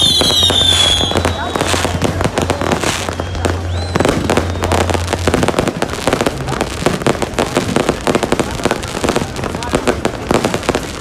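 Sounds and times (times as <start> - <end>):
rising whistle: 0.0 - 2.2, 2.9 - 5.2
fireworks crackling and banging: 0.0 - 11.0.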